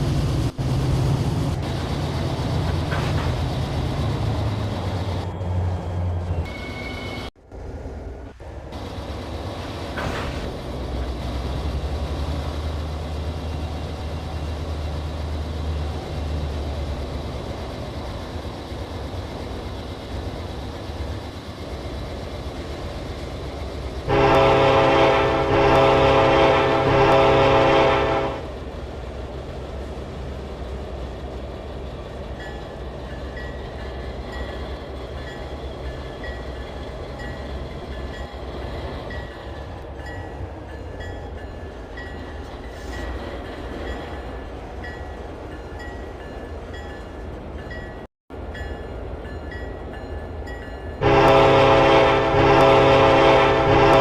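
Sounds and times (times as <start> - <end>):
freight cars rolling: 0.0 - 54.0
train air horn blast: 24.1 - 28.4, 51.0 - 54.0.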